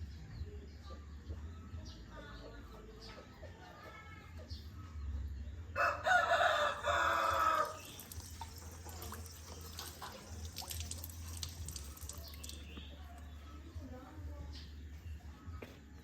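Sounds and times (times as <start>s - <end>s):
rooster crowing: 5.8s - 7.9s.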